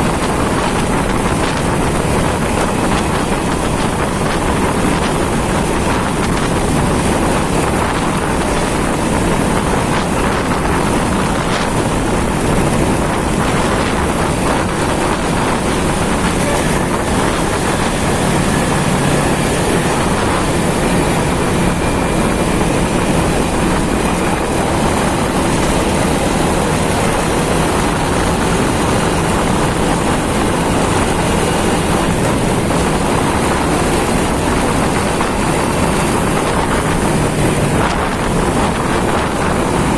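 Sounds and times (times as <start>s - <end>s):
motorcycle engine: 0.0s - 39.9s
wind on microphone: 0.0s - 39.9s.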